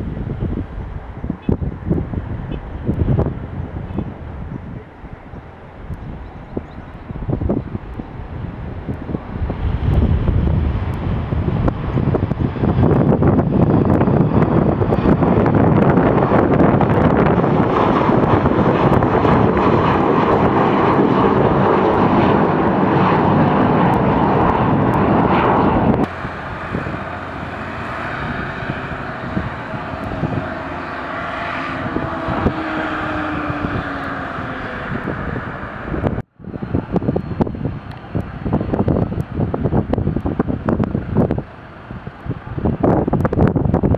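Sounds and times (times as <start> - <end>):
airliner engines running: 0.0 - 43.9
thin whine: 2.5 - 42.3.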